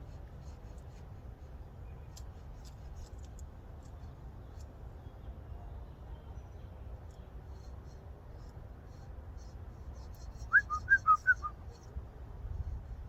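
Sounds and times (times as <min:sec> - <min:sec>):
person whistling: 0:10.5 - 0:11.5.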